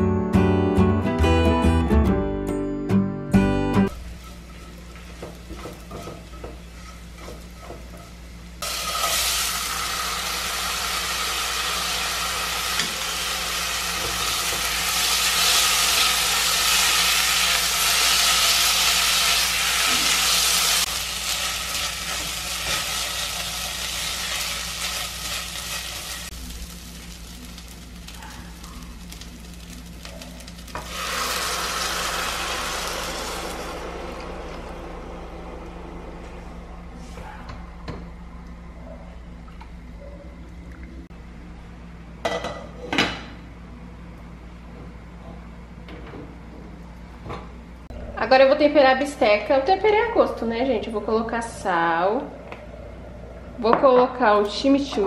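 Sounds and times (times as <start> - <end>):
food sizzling in a hot pan: 8.1 - 33.8
steady low hum: 19.5 - 54.8.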